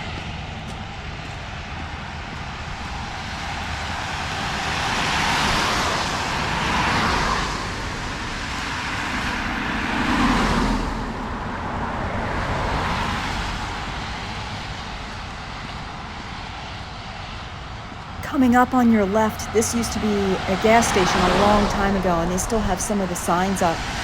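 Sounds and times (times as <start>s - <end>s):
cars passing on wet road: 0.0s - 24.0s.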